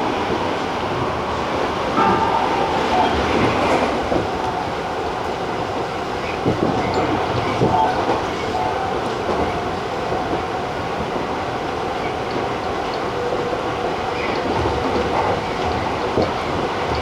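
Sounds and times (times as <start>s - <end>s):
train wheels rumbling on rail: 0.0s - 17.0s
rail-joint knocks: 2.0s - 5.4s.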